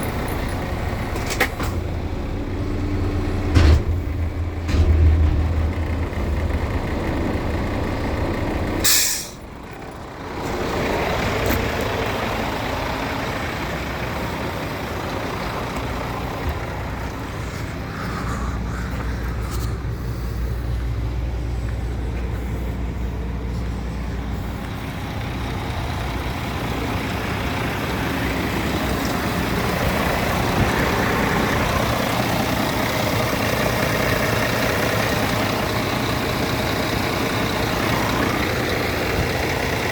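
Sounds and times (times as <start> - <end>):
diesel truck engine running: 0.0 - 39.9
air brake hiss: 8.8 - 9.4.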